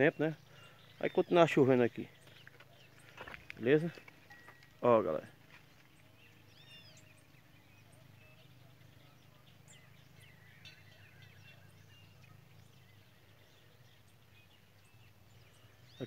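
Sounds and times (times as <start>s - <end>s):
songbirds singing faintly: 0.0s - 16.0s
low steady hum: 2.0s - 16.0s.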